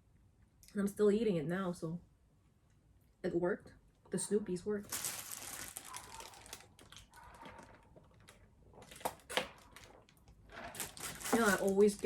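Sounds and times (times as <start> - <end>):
paper packaging rustling: 4.8 - 12.0.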